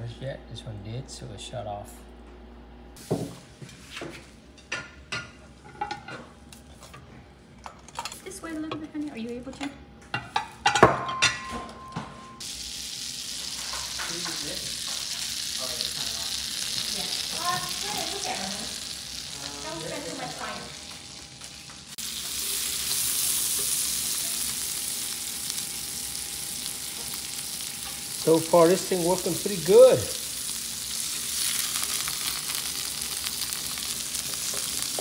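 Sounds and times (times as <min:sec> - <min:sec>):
dishes clinking: 0:09.6 - 0:12.4
meat sizzling on grill: 0:12.4 - 0:35.0.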